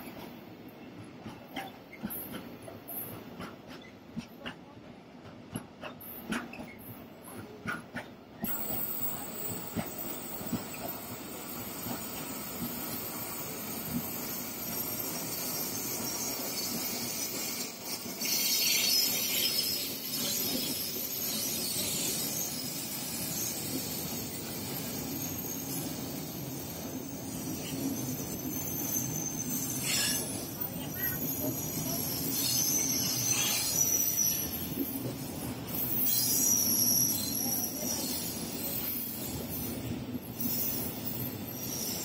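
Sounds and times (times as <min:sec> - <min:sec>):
freight train wheels rumbling: 0:00.0 - 0:42.0
passenger train running past: 0:00.0 - 0:42.0
high-pitched hissing noise: 0:11.6 - 0:34.8.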